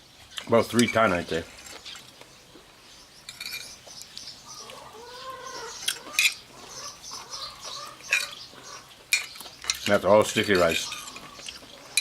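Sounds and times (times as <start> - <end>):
small birds chirping: 0.0 - 12.0
drawn-out animal call: 4.5 - 9.0, 10.6 - 12.0.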